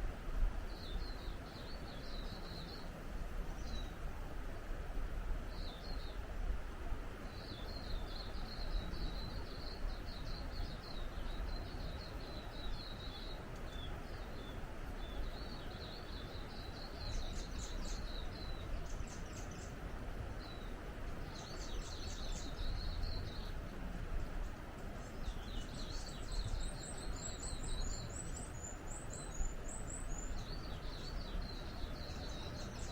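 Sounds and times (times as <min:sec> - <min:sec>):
songbird twittering: 0:07.3 - 0:23.7, 0:25.0 - 0:32.9.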